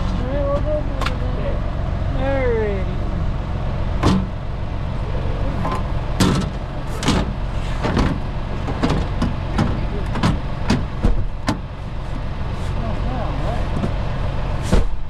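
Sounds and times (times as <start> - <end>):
low engine hum: 0.0 - 15.0
sharp knocks and clunks: 4.0 - 4.4, 5.6 - 11.7, 14.6 - 15.0.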